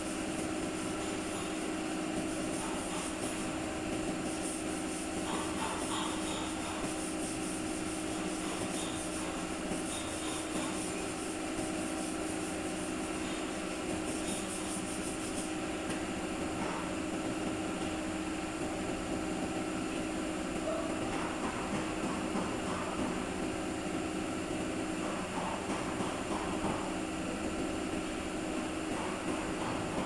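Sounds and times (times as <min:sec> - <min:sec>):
continuous rubbing noise: 0:04.2 - 0:15.5.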